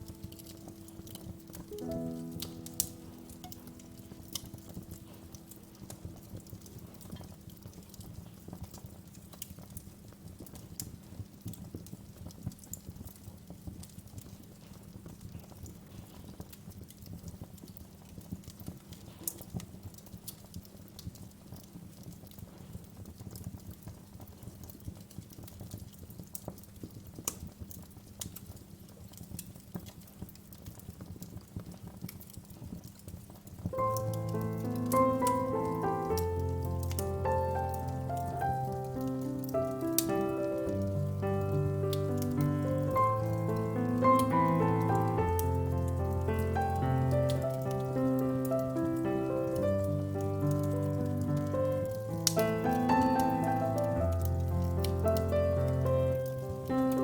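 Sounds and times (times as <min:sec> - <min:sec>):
music: 0:00.0 - 0:08.1, 0:33.8 - 0:57.0
wood fire crackling: 0:00.0 - 0:57.0.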